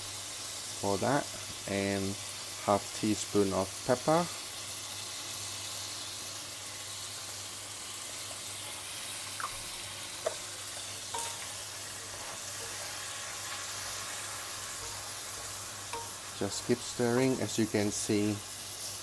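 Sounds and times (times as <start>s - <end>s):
food sizzling in a pan: 0.0s - 19.0s
utensil clicking against pan: 14.8s - 17.4s.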